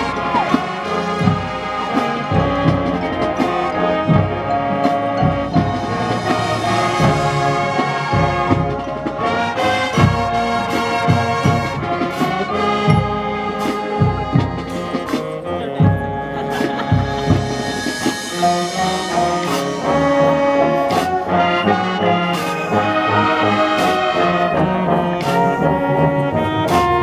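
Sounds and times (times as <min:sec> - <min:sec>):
brass sustained chords: 0:00.0 - 0:27.0.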